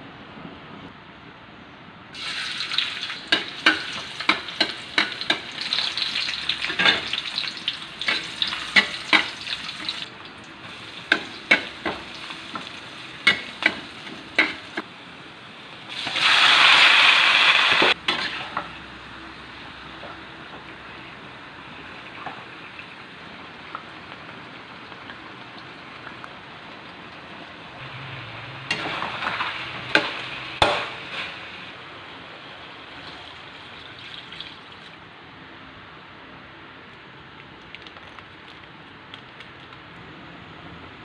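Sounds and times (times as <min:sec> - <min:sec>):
food sizzling in a pan: 0:02.2 - 0:14.8, 0:15.9 - 0:19.1.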